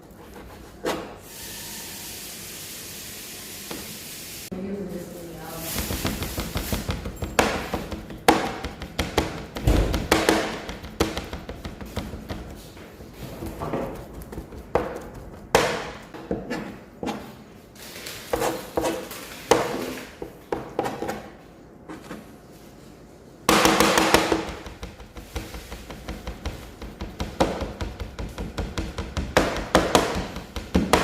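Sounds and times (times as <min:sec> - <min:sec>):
knife chopping on cutting board: 0:05.8 - 0:12.6, 0:13.4 - 0:17.2, 0:23.5 - 0:31.0.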